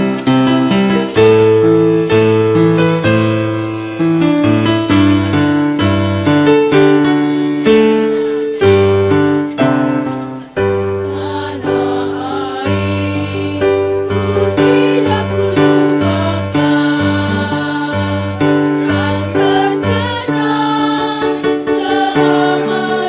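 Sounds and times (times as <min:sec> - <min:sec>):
keyboard chords: 0:00.0 - 0:23.0
choir singing: 0:09.6 - 0:23.0.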